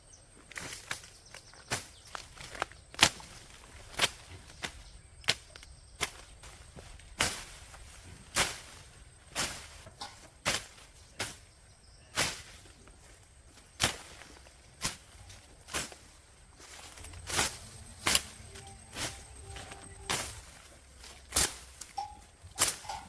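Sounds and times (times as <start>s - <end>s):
hand tool striking: 13.8s - 23.0s.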